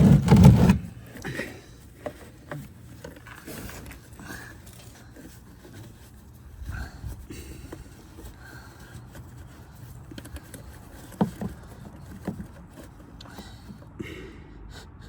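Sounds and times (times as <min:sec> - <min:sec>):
tools clicking on car engine: 0:07.6 - 0:14.0.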